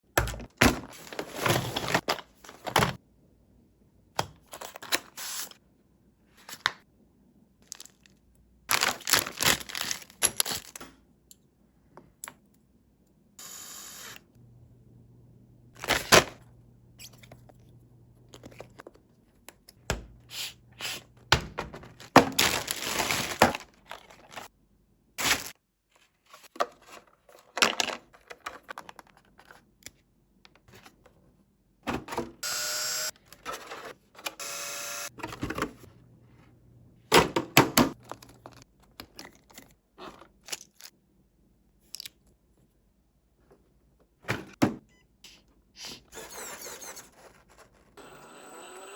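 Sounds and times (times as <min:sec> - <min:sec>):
toy car scraping and rattling: 0:46.2 - 0:48.0.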